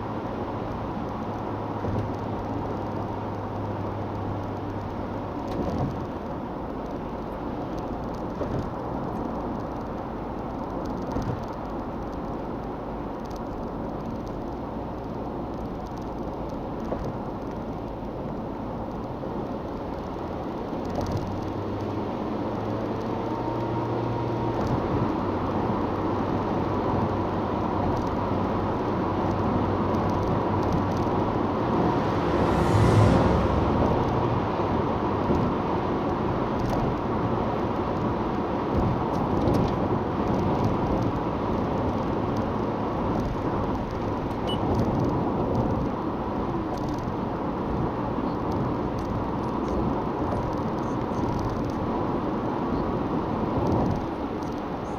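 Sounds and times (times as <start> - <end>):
car engine hum: 28.4 - 37.0
tyre and road noise: 28.9 - 37.4
rushing swell: 30.7 - 35.7.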